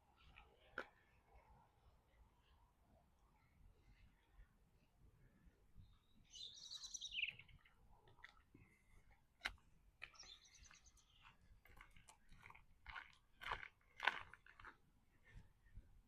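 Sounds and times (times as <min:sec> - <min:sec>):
songbird singing: 0:05.3 - 0:08.7, 0:10.0 - 0:12.0.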